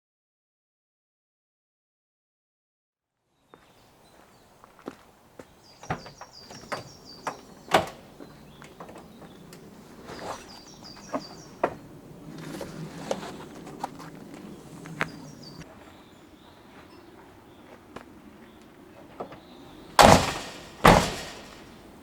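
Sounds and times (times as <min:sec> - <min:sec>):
bird chirping: 0:05.4 - 0:13.2, 0:13.9 - 0:22.0
objects knocking and clacking: 0:20.0 - 0:22.0.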